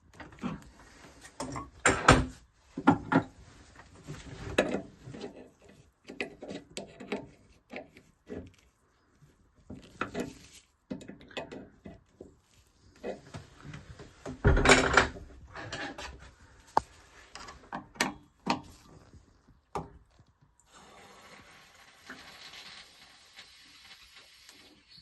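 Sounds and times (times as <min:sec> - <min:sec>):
tools knocking and scraping: 0:13.0 - 0:16.2.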